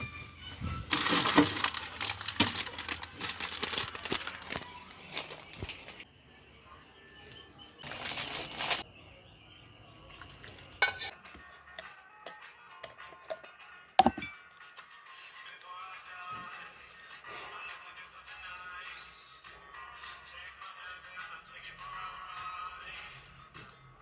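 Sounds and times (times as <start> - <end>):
rustling and crinkling: 0.7 - 6.0, 7.8 - 8.8.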